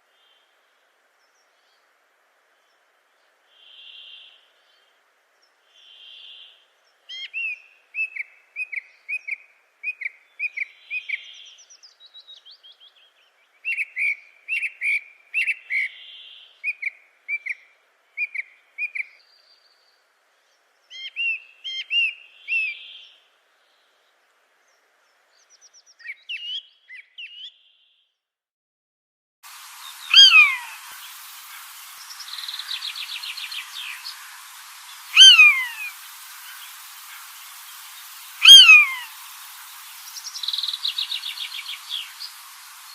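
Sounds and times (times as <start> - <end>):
birds chirping: 29.5 - 42.9
soft whistled bird note: 32.0 - 39.2.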